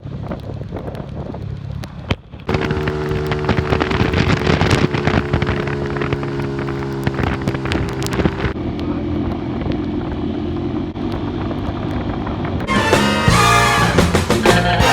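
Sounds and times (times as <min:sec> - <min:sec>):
wind buffeting microphone: 0:00.2 - 0:08.6
motorcycle engine running: 0:02.5 - 0:14.9.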